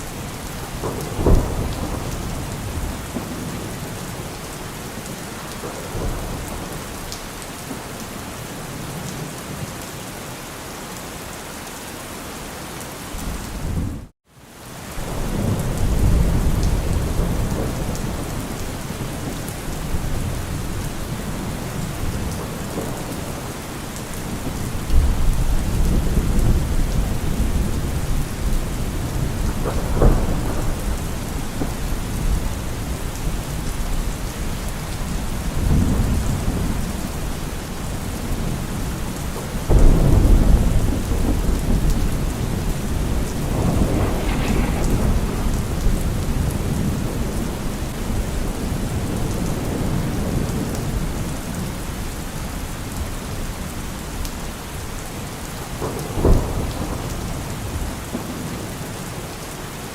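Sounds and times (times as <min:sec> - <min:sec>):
thunder rolling: 0:00.0 - 0:04.7, 0:15.0 - 0:51.2
heavy rain on a car roof: 0:00.0 - 0:59.9.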